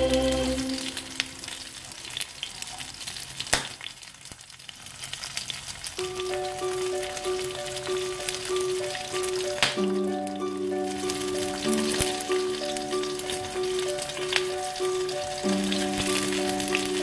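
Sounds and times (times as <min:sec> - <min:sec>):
background music: 0:00.0 - 0:01.6, 0:06.0 - 0:17.0
oil sizzling and popping: 0:00.0 - 0:17.0
simple repeating tune: 0:06.0 - 0:17.0.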